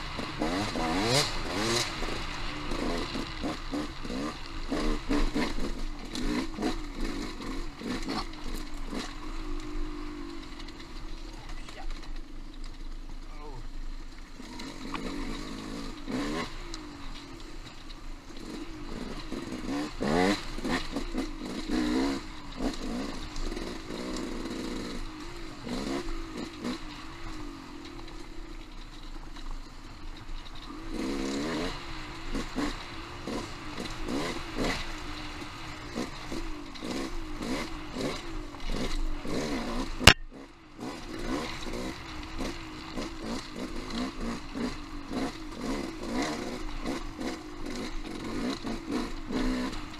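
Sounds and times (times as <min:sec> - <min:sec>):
dirt bike engine revving: 0:00.0 - 0:12.9, 0:13.6 - 0:49.9
sharp crack: 0:39.7 - 0:40.4.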